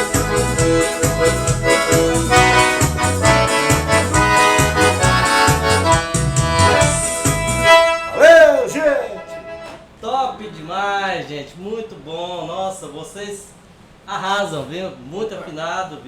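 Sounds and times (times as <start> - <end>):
pulsing bass beat: 0.0 - 8.0
accordion: 0.0 - 10.0
band playing: 0.0 - 10.0
loud bending note: 0.0 - 10.0.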